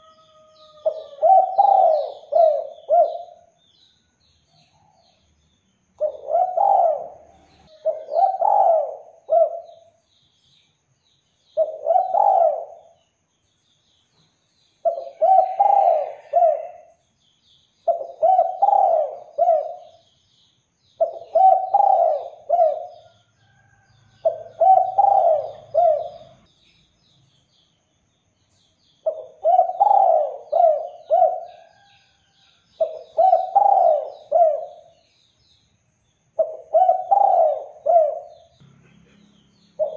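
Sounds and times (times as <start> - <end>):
dove cooing: 0.0 - 3.5, 6.0 - 10.0, 11.6 - 13.0, 14.8 - 16.9, 17.8 - 20.0, 21.0 - 23.1, 24.2 - 26.4, 29.0 - 31.9, 32.8 - 35.0, 36.4 - 38.5
small birds chirping: 0.0 - 39.9.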